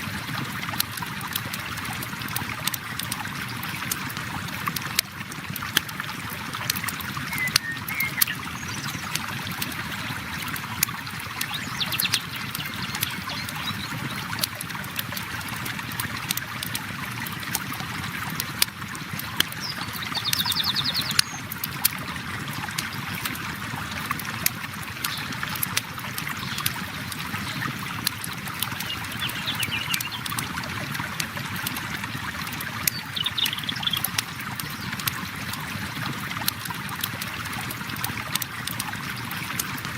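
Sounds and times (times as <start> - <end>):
river water flowing and trickling: 0.0 - 39.9
bird trilling calls: 7.3 - 8.8, 28.9 - 30.2.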